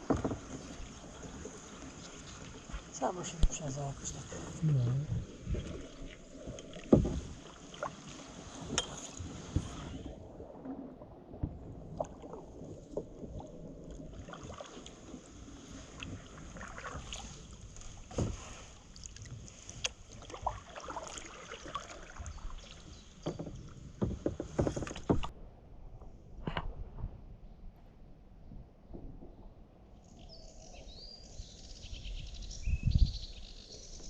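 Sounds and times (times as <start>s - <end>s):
paddle knocking against kayak: 0.0s - 3.6s, 5.3s - 7.9s, 19.8s - 25.3s
paddle splashing in water: 0.0s - 25.4s.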